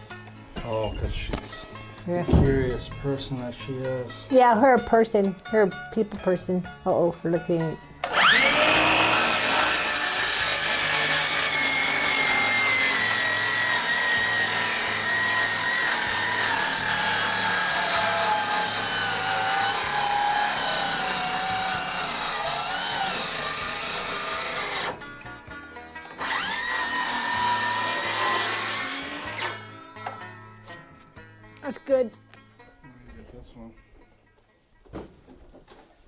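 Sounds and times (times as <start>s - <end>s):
power saw cutting wood: 8.0s - 25.0s, 26.0s - 29.7s.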